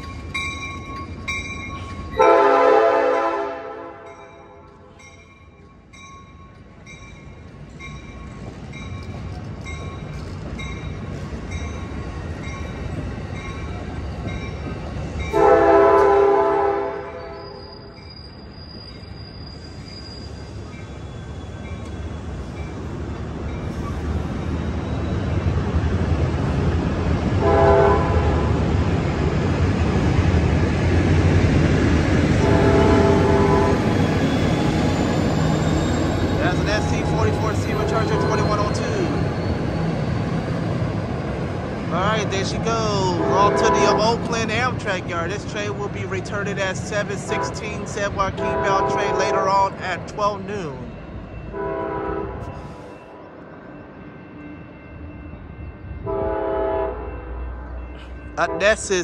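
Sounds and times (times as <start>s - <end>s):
train rumble: 0.0s - 59.0s
train air horn blasts: 2.2s - 4.1s, 15.4s - 17.7s, 27.4s - 28.6s, 32.4s - 33.9s, 43.1s - 44.2s, 47.3s - 47.7s, 48.4s - 49.5s, 51.5s - 52.8s, 56.0s - 57.4s.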